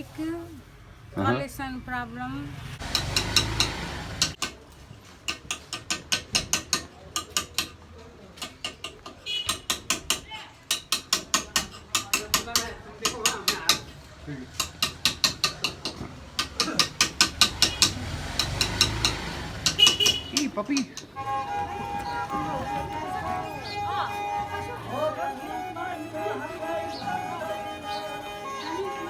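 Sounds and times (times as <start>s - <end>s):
sharp taps: 2.8s - 7.8s, 8.4s - 22.8s.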